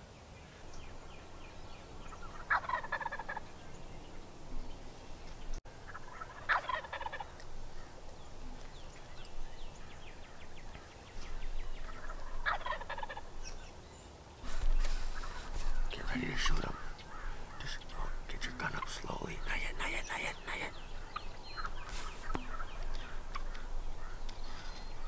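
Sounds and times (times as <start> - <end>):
turkey gobbling: 2.0 - 4.7, 5.8 - 8.6, 11.8 - 13.4, 20.5 - 24.7.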